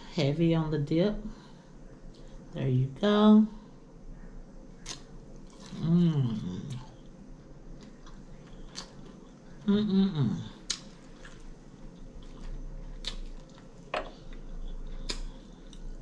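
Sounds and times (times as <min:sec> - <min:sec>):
chewing crunchy chicken: 0:04.8 - 0:07.1, 0:07.7 - 0:09.6, 0:10.5 - 0:16.0.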